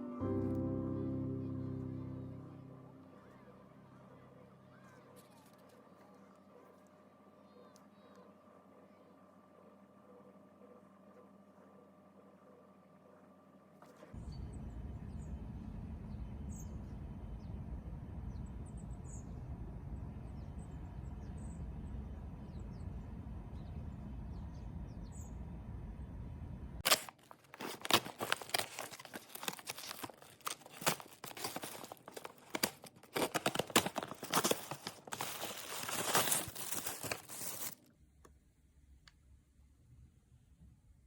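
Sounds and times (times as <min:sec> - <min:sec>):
packaging crackling and rustling: 0:26.8 - 0:37.8.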